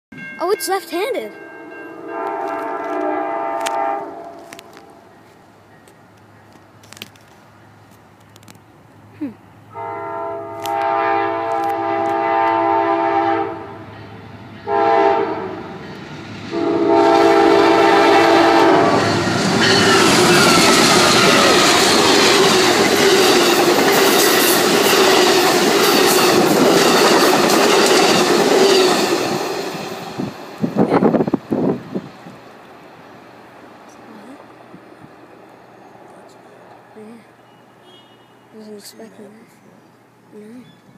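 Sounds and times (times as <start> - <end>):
train passing at speed: 0.2 - 6.8, 9.0 - 37.9
locomotive air horn blasts: 2.0 - 5.0, 9.7 - 13.8, 14.6 - 15.6, 16.5 - 19.2, 37.8 - 38.5.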